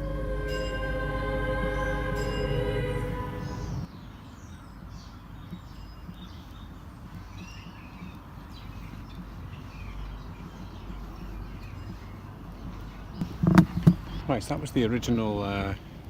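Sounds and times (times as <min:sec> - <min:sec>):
low outdoor rumble: 0:00.0 - 0:03.9
birds chirping: 0:00.0 - 0:14.4.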